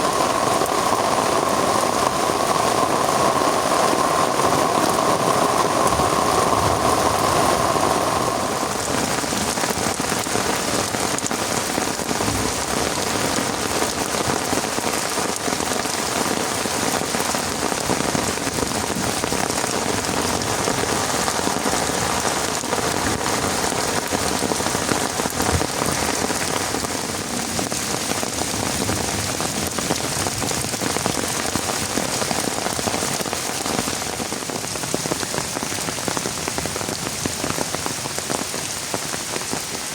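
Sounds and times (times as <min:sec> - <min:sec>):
hiss: 0:00.0 - 0:10.9
heavy rain falling: 0:00.0 - 0:39.9.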